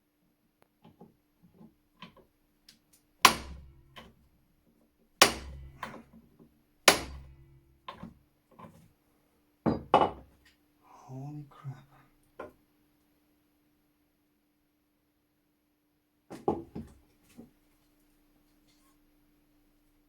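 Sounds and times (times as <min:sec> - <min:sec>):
hammer striking metal: 0:03.3 - 0:04.1, 0:05.2 - 0:06.0, 0:06.9 - 0:07.5.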